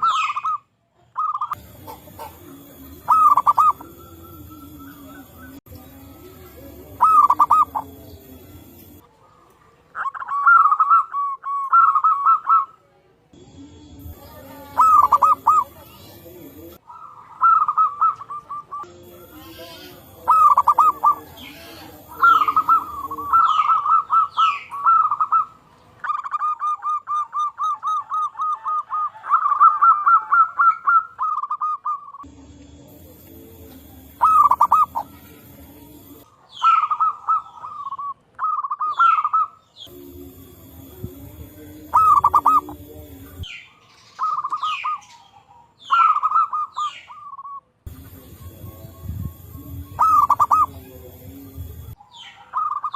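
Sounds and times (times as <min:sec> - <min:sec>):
doves cooing: 0:00.0 - 0:12.8, 0:14.0 - 0:52.9.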